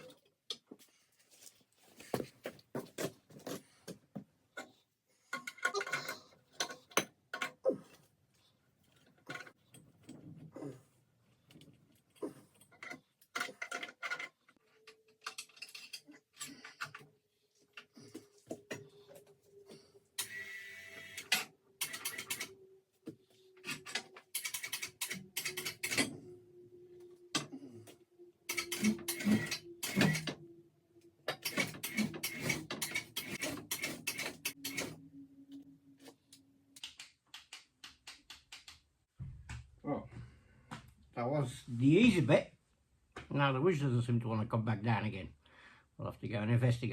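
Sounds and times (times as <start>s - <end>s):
electric winch motor hum: 19.8s - 22.7s, 23.6s - 35.6s
metallic clicks and clanks: 21.2s - 22.5s, 23.6s - 26.3s, 28.5s - 30.4s, 31.3s - 35.0s.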